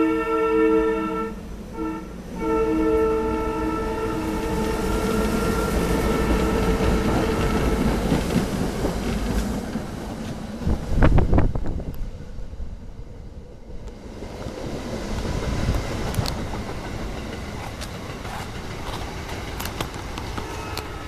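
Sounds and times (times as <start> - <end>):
train horn: 0.0 - 8.2, 20.2 - 21.0
train rushing past: 0.0 - 21.0.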